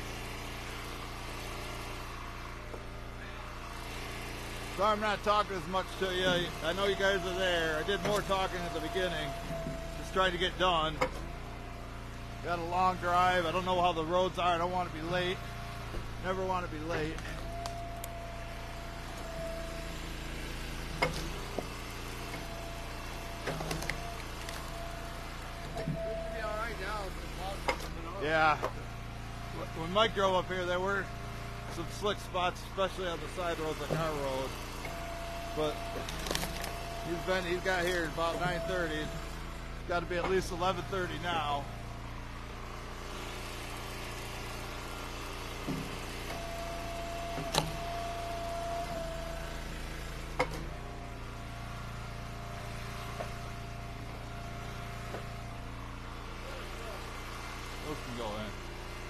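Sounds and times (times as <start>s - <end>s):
engine idling: 0.0s - 59.0s
steady high whine: 4.8s - 11.0s.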